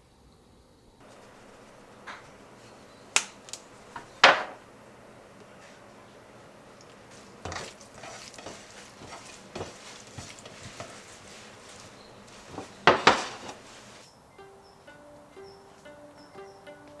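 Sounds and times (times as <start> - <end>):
faint sizzle: 0.0 - 14.1
utensil scraping a pan: 6.8 - 14.0.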